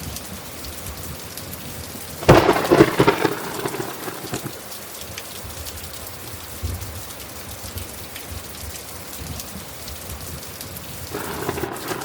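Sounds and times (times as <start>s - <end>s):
steady rainfall: 0.0s - 12.0s
thunder rumbling: 2.2s - 4.7s, 11.1s - 12.0s.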